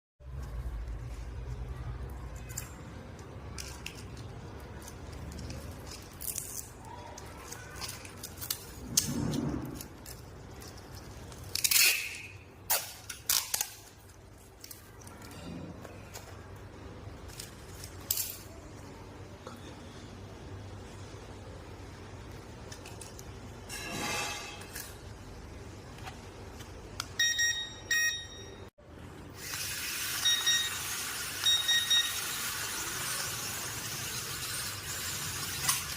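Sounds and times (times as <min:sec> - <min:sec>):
small objects clicking and clinking: 0:02.2 - 0:15.4.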